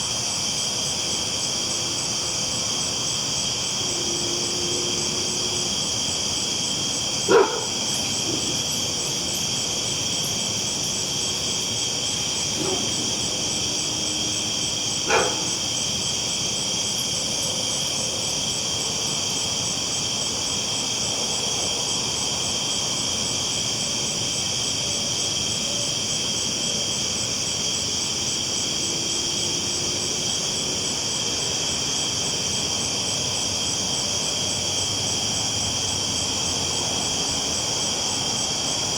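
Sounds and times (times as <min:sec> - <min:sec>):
dog barking: 0:07.3 - 0:08.6, 0:12.5 - 0:13.2, 0:15.0 - 0:15.6.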